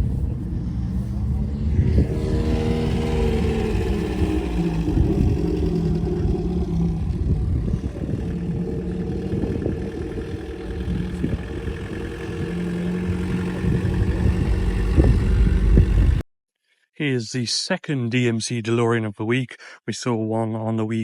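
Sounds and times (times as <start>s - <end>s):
car engine idling: 0.0s - 16.2s.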